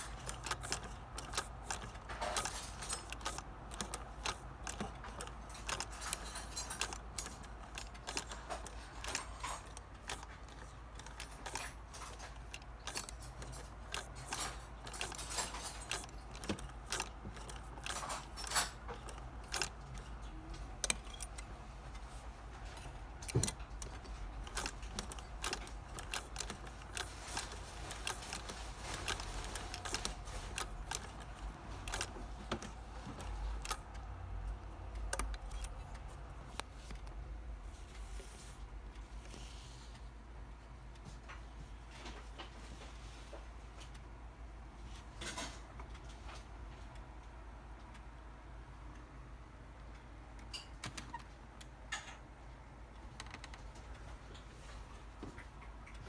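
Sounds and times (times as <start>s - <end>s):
sewing machine metallic clicks: 0.0s - 37.2s
steady low hum: 0.0s - 56.0s.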